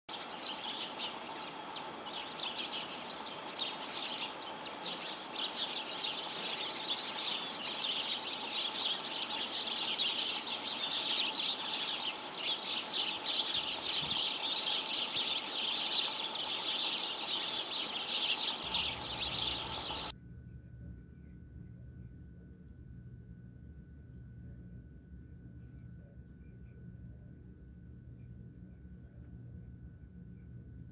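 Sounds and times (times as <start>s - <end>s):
flock of birds chattering: 0.1s - 20.1s.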